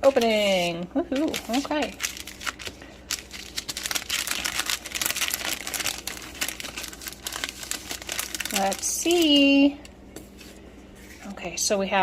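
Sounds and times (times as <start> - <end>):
packaging crinkling: 1.1 - 9.7.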